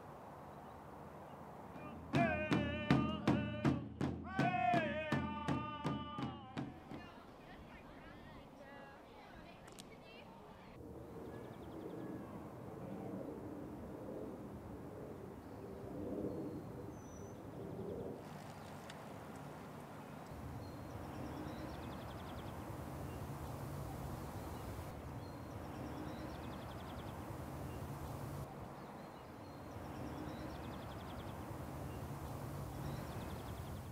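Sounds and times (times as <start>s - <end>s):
low outdoor rumble: 19.0s - 28.8s, 29.7s - 33.9s
small birds chirping and trilling: 20.0s - 33.9s.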